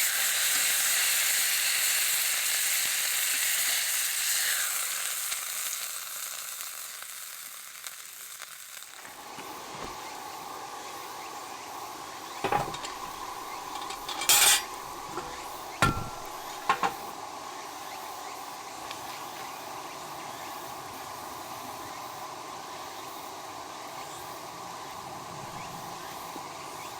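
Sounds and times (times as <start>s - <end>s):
meat sizzling in a pot: 0.0s - 10.1s
metal utensils clinking: 12.4s - 17.1s.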